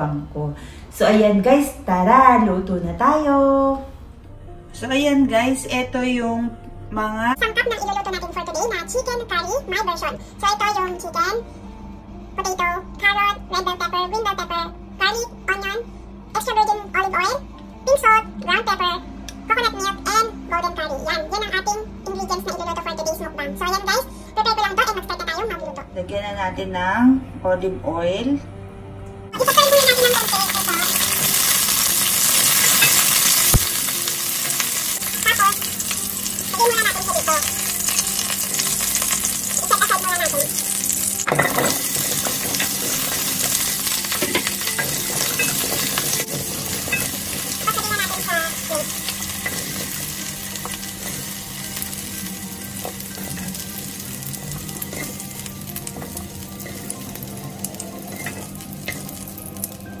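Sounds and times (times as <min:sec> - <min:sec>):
pepper sizzling in a wok: 0:29.4 - 1:00.0.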